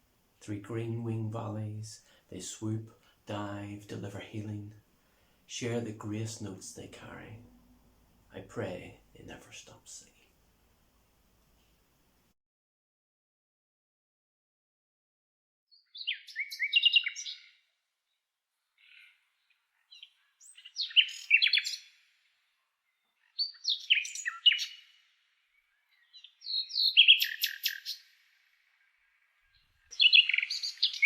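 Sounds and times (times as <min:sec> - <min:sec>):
songbird singing: 0:00.0 - 0:04.9, 0:15.7 - 0:31.0.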